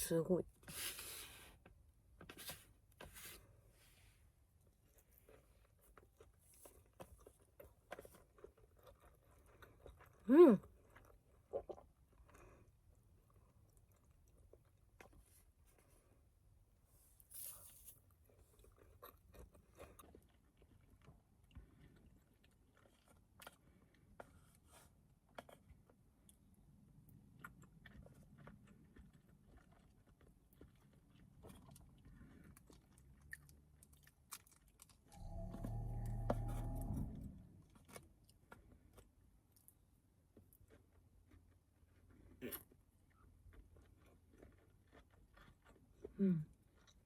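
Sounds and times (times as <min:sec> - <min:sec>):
person chewing: 0:04.8 - 0:16.0, 0:17.3 - 0:26.4, 0:27.1 - 0:47.0
low sound: 0:35.1 - 0:38.0.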